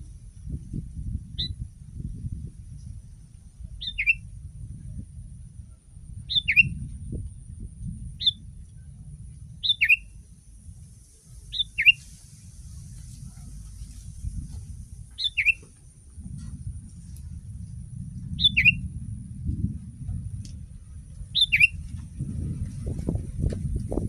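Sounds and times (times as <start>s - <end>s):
low rumble: 0.0s - 24.0s
bulbul two-note calls: 15.2s - 15.6s.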